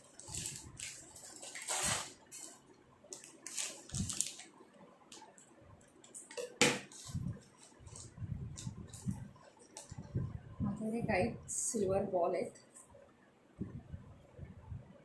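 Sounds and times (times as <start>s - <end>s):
rustling of packaging: 0.0s - 5.3s, 6.9s - 10.0s.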